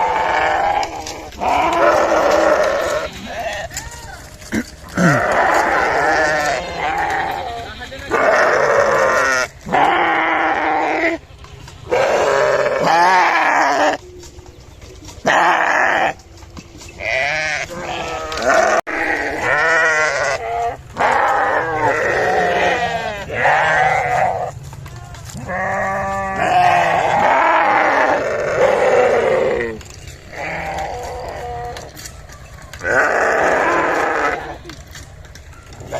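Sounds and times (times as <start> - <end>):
sheep bleating: 0.0 - 11.2, 11.9 - 14.0, 15.2 - 16.2, 17.0 - 32.1, 32.7 - 35.0.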